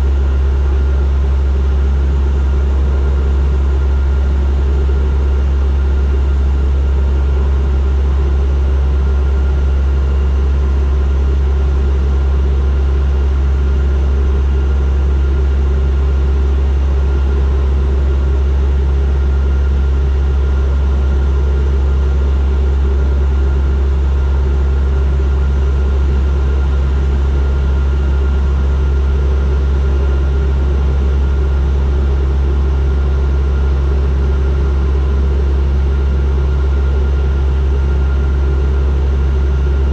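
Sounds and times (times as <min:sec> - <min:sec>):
deep propeller hum: 0:00.0 - 0:39.9.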